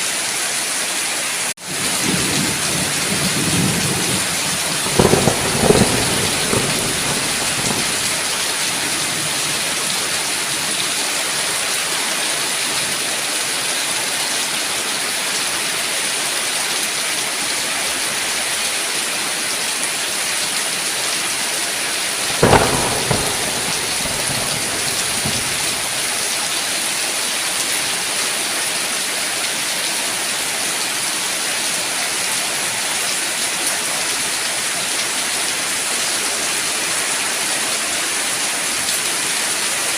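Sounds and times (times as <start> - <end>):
steady rain falling: 0.0 - 39.9
thunder crack: 2.0 - 9.4, 22.2 - 26.4.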